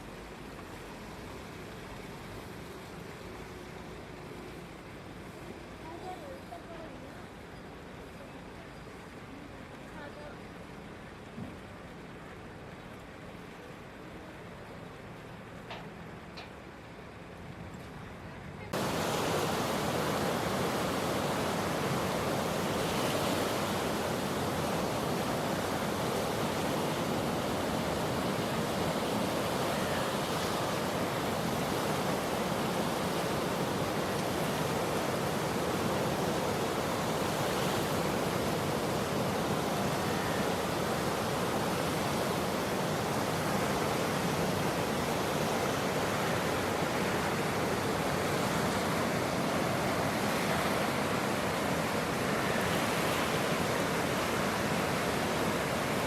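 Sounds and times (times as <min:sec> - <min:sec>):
river floodwater rushing: 0:18.7 - 0:56.0.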